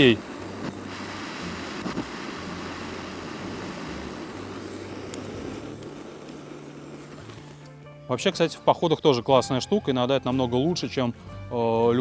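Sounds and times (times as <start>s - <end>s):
gas torch hissing: 0.0s - 7.9s.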